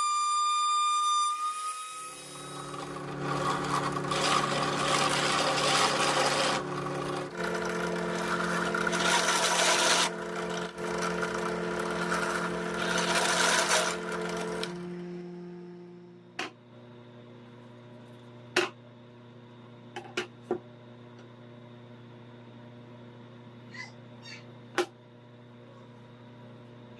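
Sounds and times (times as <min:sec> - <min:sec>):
power tool sanding wood: 0:02.0 - 0:16.0.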